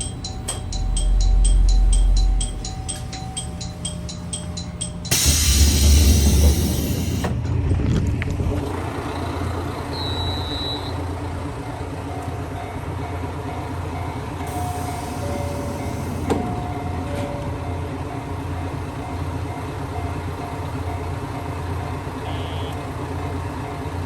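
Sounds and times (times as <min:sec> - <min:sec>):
rapid chiming ticks: 0:00.0 - 0:06.1
train rumbling: 0:00.0 - 0:24.0.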